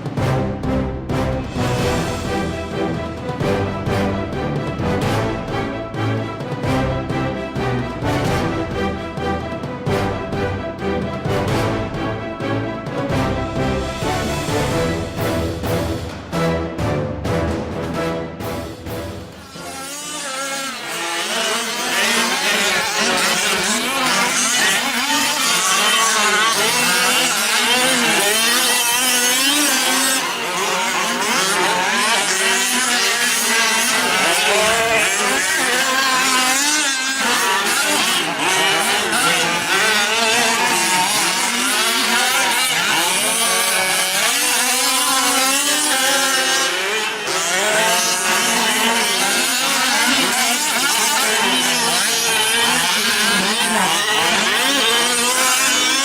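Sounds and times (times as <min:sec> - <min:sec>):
small two-stroke engines revving: 0:19.3 - 0:56.0.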